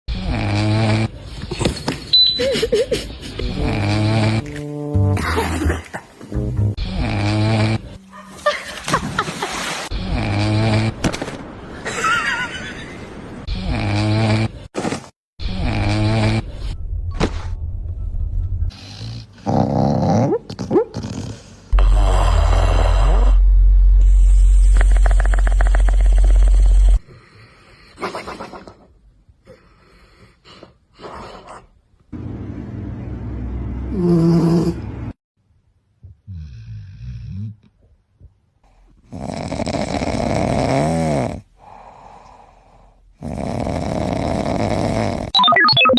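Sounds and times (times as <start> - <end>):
dog snoring: 0.1 - 1.2, 3.6 - 4.5, 6.9 - 7.9, 13.6 - 14.6, 15.5 - 16.5, 18.7 - 20.3, 33.9 - 34.8, 39.1 - 41.5, 43.2 - 45.3
dogs snoring and snuffling: 0.1 - 1.8, 3.4 - 4.7, 6.7 - 8.0, 10.0 - 11.0, 13.5 - 14.7, 15.4 - 16.8, 18.7 - 31.8, 33.9 - 35.2, 36.0 - 45.4.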